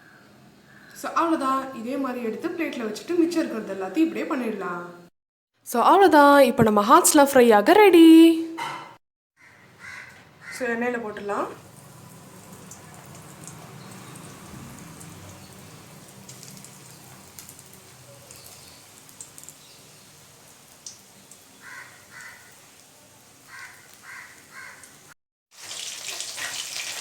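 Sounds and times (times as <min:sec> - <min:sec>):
crow cawing: 0:09.4 - 0:10.6, 0:21.6 - 0:22.6, 0:23.5 - 0:25.0
prawns frying in hot oil: 0:11.4 - 0:27.0.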